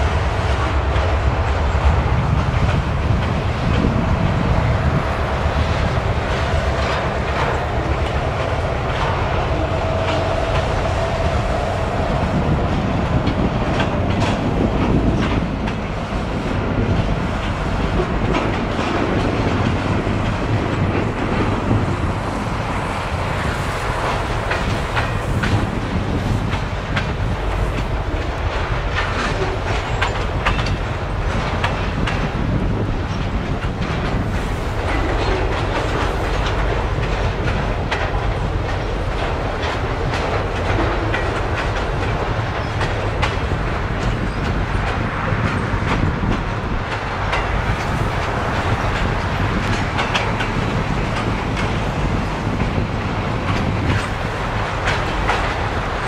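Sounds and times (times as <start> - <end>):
freight train wheels clattering: 0.0 - 56.0.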